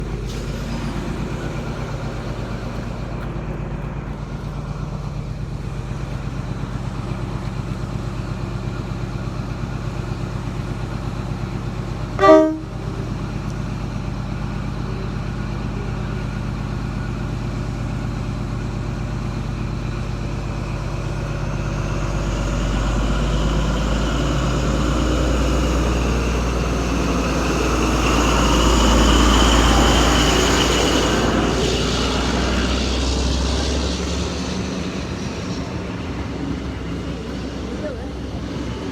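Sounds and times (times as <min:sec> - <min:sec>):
diesel train engines running: 0:00.0 - 0:38.9
train horn toot: 0:12.2 - 0:13.2.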